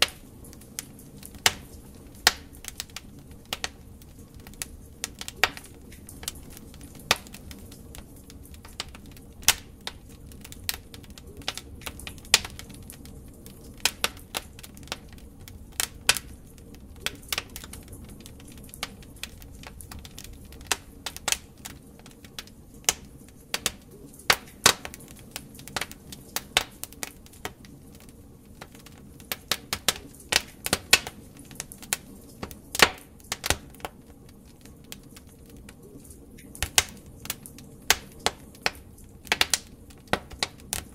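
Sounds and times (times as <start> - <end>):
hiss of flames: 0.0 - 40.9
wood fire crackling and popping: 0.0 - 40.9.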